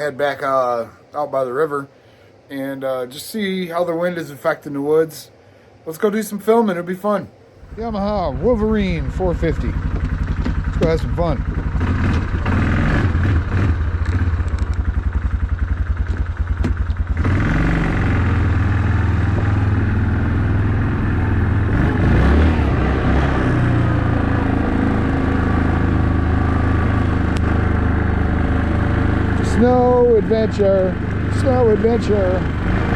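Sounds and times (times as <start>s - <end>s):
atv engine idling and revving: 7.6s - 32.9s.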